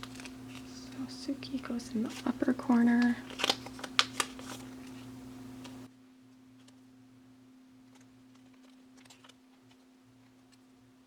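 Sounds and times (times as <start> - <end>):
low electrical hum: 0.0 - 11.0
plastic sleeves clicking: 3.0 - 5.0.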